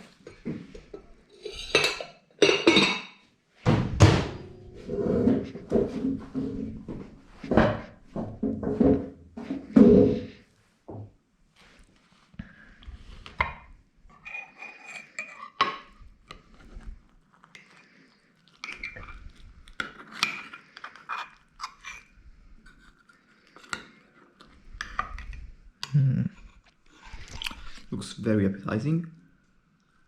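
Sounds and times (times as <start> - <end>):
cutlery clinking on dishes: 0.2 - 3.2.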